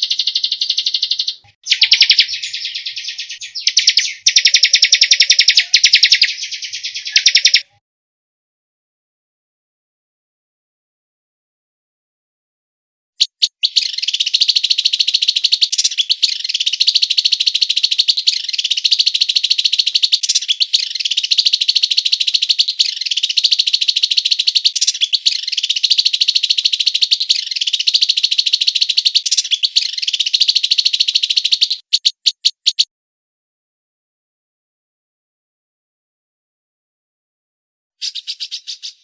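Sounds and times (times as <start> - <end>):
songbird rapid rolling trill: 0.0 - 7.7, 13.2 - 32.8.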